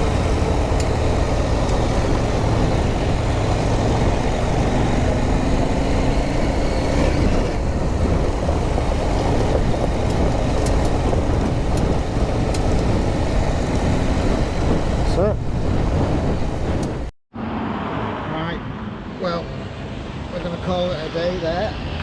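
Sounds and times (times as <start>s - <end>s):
motorcycle engine droning: 0.0s - 17.1s
sharp clicks: 9.1s - 13.0s.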